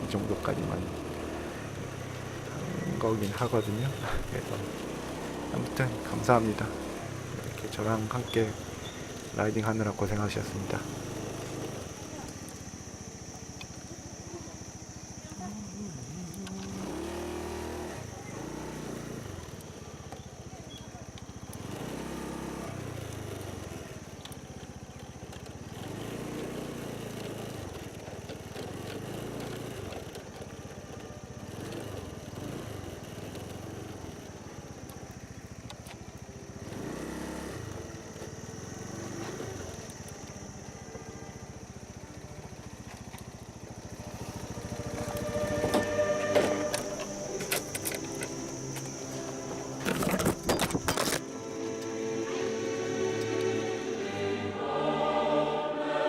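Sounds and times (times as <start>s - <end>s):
motor scooter engine revving: 0.0s - 55.0s
high-pitched whine: 44.0s - 56.0s.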